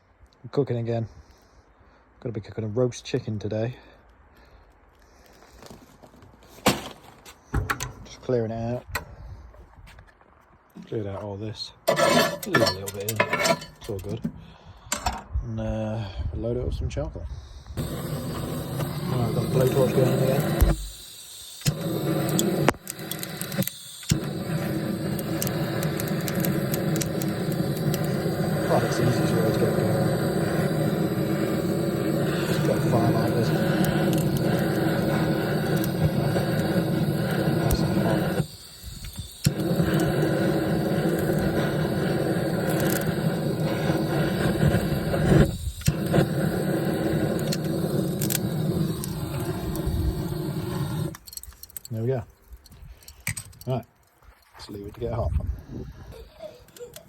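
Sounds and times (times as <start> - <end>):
blowtorch flame rushing: 17.7 - 51.2
blowtorch igniter click: 17.8 - 51.8.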